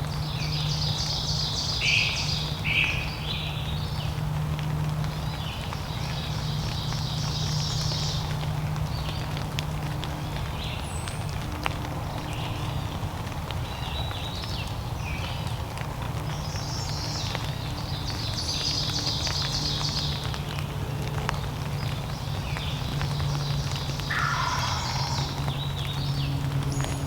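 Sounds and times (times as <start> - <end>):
small birds singing: 0.0 - 4.2, 5.1 - 9.4, 10.1 - 11.4, 12.2 - 15.6, 16.2 - 27.0
bird call falling in pitch: 24.1 - 25.6.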